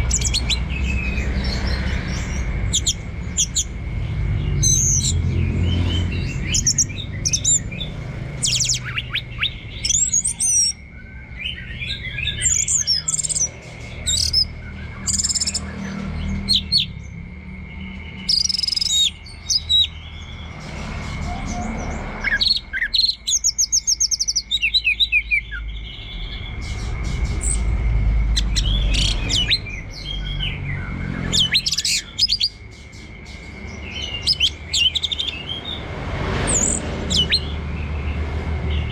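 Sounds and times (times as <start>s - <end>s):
thrush singing: 0.0s - 38.9s
low rumble: 25.3s - 31.6s.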